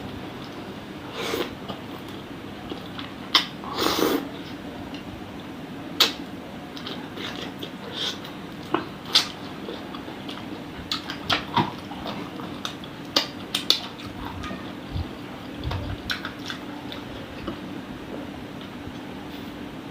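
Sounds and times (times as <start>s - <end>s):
steady low hum: 0.0s - 19.9s
chewing clicks and smacks: 8.5s - 14.5s, 15.6s - 17.6s.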